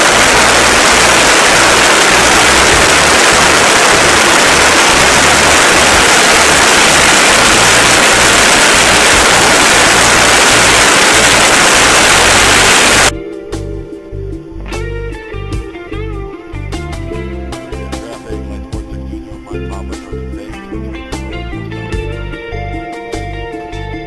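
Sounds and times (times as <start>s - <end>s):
aircraft engine at high power: 0.0s - 13.1s.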